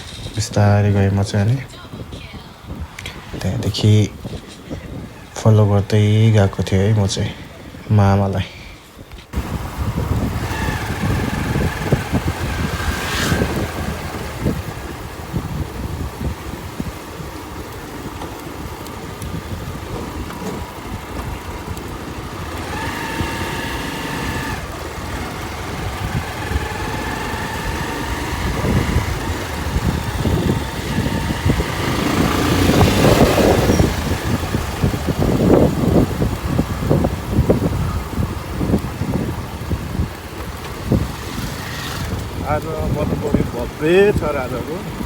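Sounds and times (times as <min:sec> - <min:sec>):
road noise: 0:00.0 - 0:45.0
wind rushing over microphone: 0:00.0 - 0:45.0
motorcycle engine running: 0:09.3 - 0:45.0
steady whine: 0:19.3 - 0:37.6.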